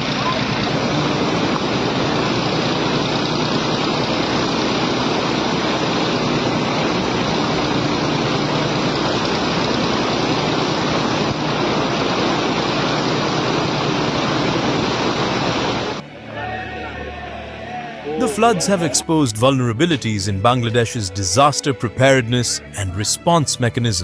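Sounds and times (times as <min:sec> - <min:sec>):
low engine-like hum: 0:00.0 - 0:16.2
loud rushing noise: 0:00.0 - 0:16.3.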